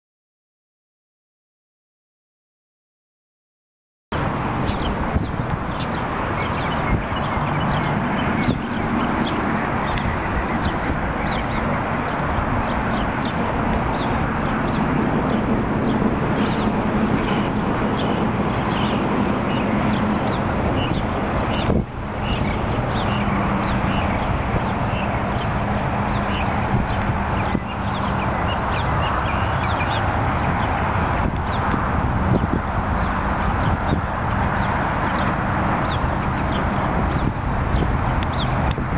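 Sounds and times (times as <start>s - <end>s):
birds chirping: 4.6s - 38.9s.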